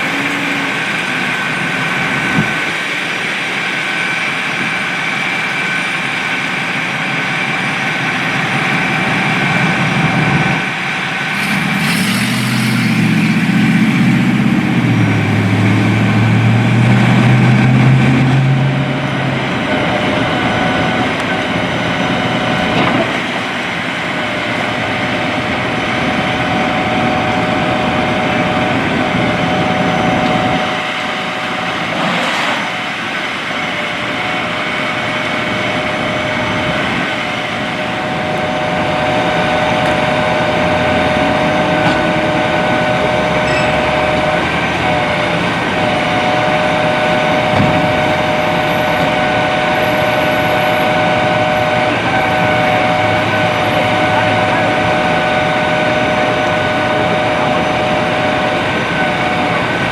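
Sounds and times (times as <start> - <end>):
constant hum: 0.0 - 59.9
vehicle engines running: 0.0 - 59.9
brief whoosh: 11.3 - 16.2.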